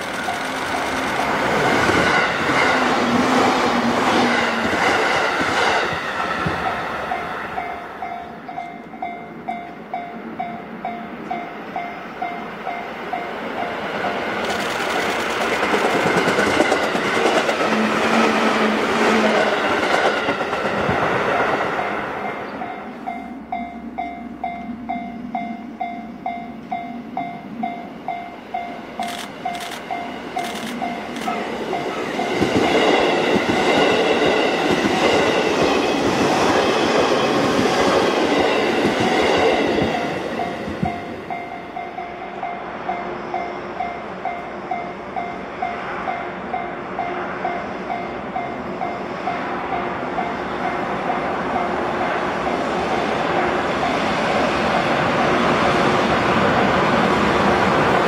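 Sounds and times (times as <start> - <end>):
railway crossing bell dinging: 0.0 - 2.8, 6.5 - 14.4, 21.3 - 35.1, 38.3 - 53.0
electric trains passing: 0.0 - 58.0.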